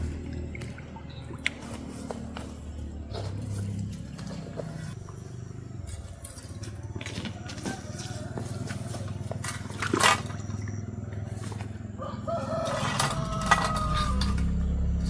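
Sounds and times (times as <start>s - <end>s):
rooster crowing: 7.0s - 9.6s, 11.8s - 15.0s
low rumble: 13.0s - 15.0s.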